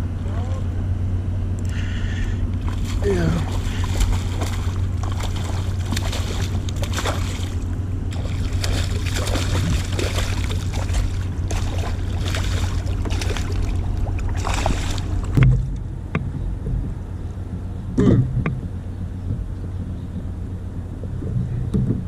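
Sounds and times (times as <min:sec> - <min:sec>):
wind rumble on microphone: 0:00.0 - 0:22.0
knocks and clicks in boat: 0:02.5 - 0:22.0
water splashing around canoe: 0:02.6 - 0:15.8.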